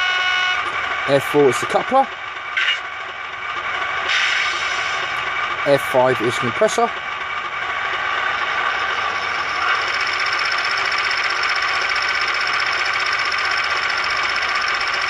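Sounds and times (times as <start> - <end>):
diesel engine idling sound: 0.0 - 15.0
air compressor sound effect: 1.2 - 2.9, 3.8 - 5.4, 7.7 - 15.0.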